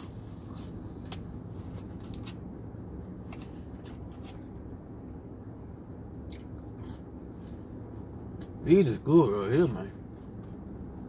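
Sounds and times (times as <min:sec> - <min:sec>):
man chewing crunchy food: 0:00.0 - 0:04.8, 0:06.2 - 0:08.6, 0:09.9 - 0:11.0
steady low hum: 0:00.0 - 0:11.0.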